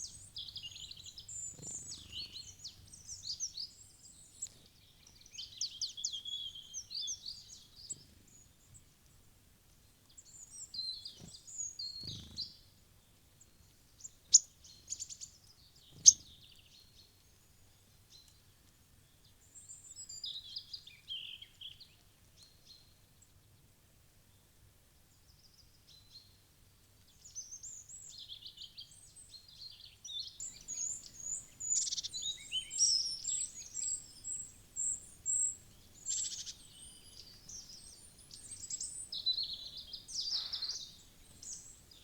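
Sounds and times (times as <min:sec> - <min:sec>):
small birds chirping: 0:00.0 - 0:23.0, 0:27.0 - 0:42.0.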